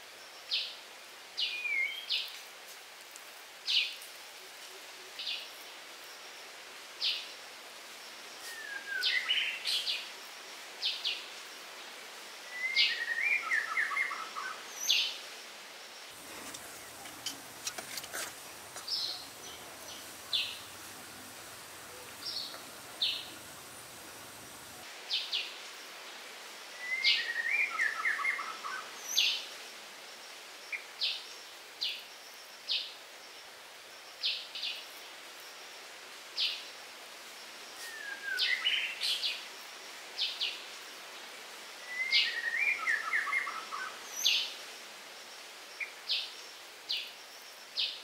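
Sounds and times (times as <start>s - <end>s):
background hiss: 0.0s - 48.0s
birds chirping: 16.2s - 24.8s.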